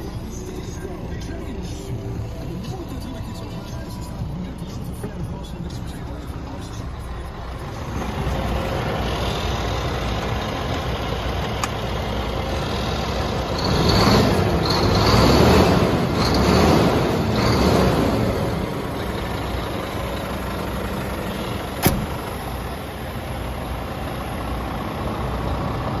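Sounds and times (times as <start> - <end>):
truck diesel engine idling: 0.0 - 26.0
sharp click: 21.8 - 22.1.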